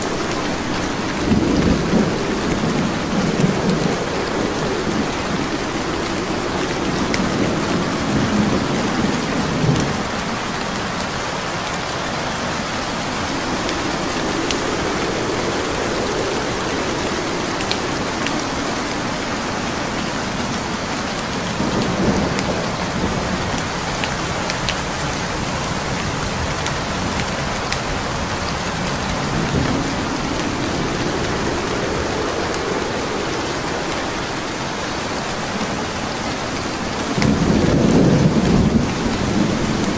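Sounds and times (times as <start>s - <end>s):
steady rain: 0.0s - 39.9s
wood fire crackling: 8.9s - 39.9s.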